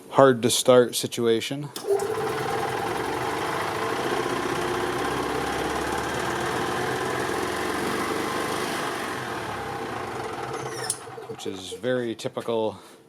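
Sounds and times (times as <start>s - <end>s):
golf cart engine running: 1.8s - 11.9s.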